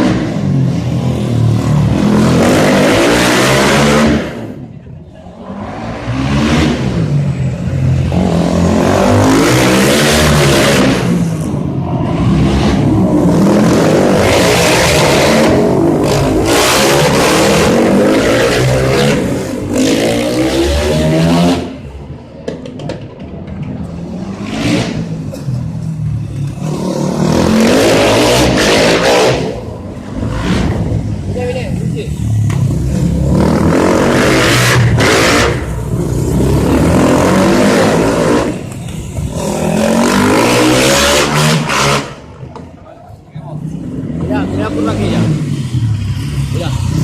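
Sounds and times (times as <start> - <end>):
motorcycle engines revving: 0.0 - 47.0.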